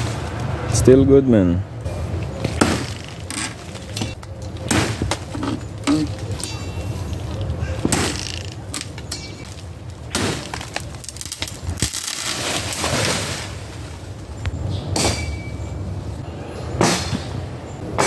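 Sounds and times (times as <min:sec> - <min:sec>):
machete chopping wood: 0:02.5 - 0:03.1, 0:04.6 - 0:05.3, 0:07.8 - 0:08.4, 0:10.1 - 0:10.8, 0:14.9 - 0:15.4, 0:16.8 - 0:17.3.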